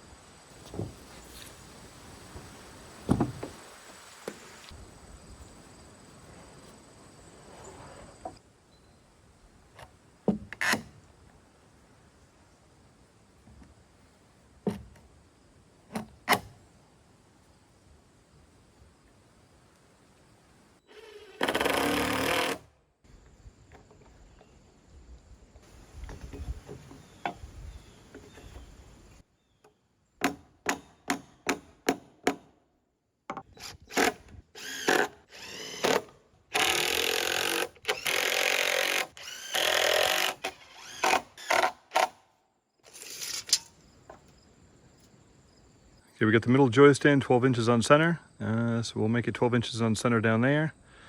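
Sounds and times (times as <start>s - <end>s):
cordless drill driving screws: 20.9s - 22.6s, 33.5s - 42.1s.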